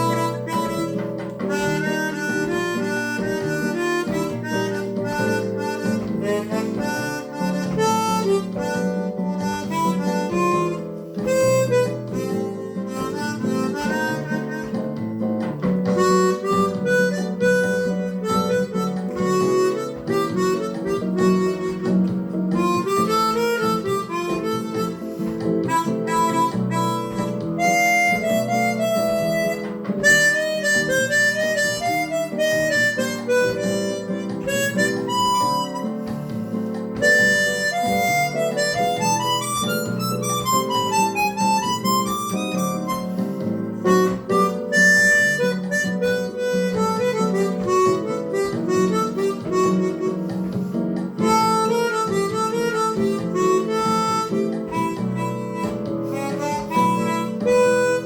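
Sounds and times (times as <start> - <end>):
chromatic harmonica melody: 0.0 - 58.0
guitar accompaniment: 0.0 - 58.0.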